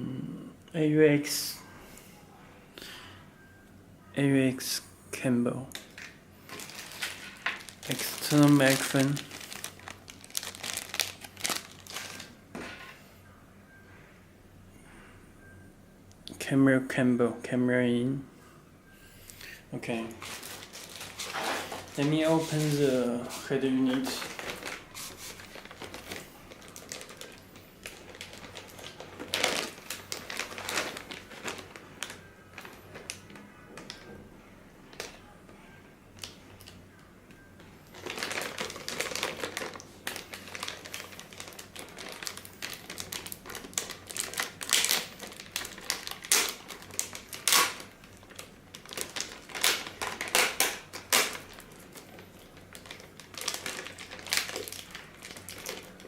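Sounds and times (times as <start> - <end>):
crinkling plastic and cardboard: 5.7 - 13.0, 20.1 - 34.2, 34.9 - 35.2, 36.2 - 56.0.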